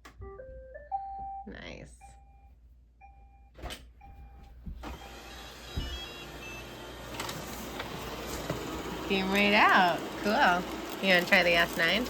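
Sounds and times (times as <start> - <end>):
robot vacuum beeping: 4.2 - 12.0
vacuum and brush motors running: 4.8 - 12.0.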